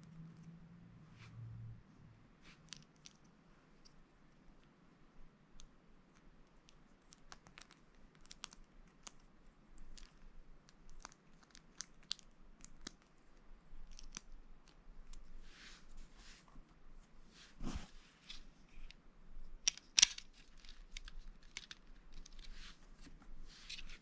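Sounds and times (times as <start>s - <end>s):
plastic bricks clicking: 19.6s - 22.4s.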